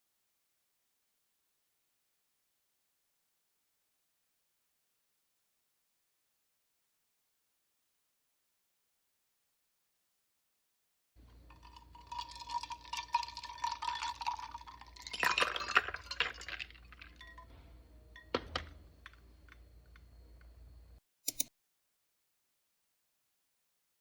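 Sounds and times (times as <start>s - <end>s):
dishes and utensils clattering: 15.0s - 17.6s, 18.2s - 19.2s.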